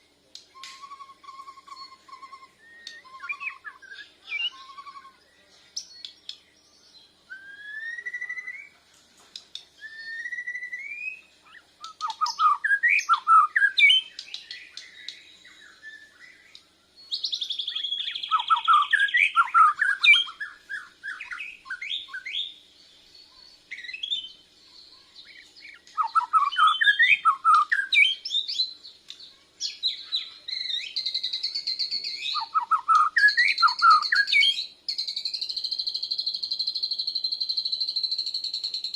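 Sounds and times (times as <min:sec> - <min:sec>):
bird singing whistles and phrases: 0:00.4 - 0:08.8, 0:09.4 - 0:38.9.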